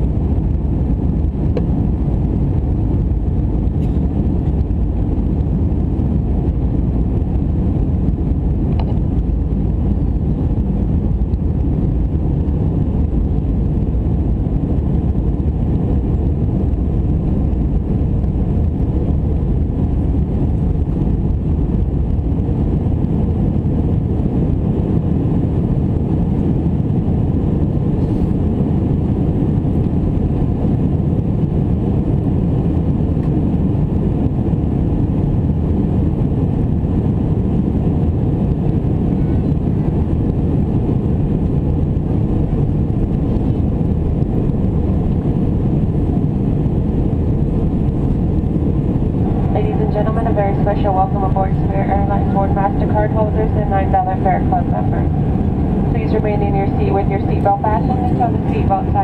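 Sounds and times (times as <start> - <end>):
jet engines rumbling: 0.0 - 59.0
air rushing past fuselage: 38.6 - 59.0.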